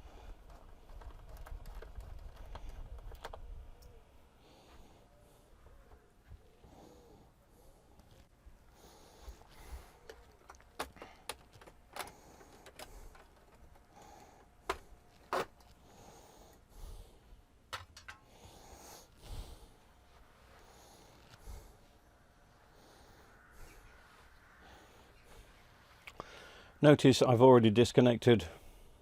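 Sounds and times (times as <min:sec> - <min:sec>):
faint clicks and knocks of handling: 0:00.0 - 0:04.1, 0:07.9 - 0:08.4, 0:09.2 - 0:16.7, 0:17.7 - 0:18.3.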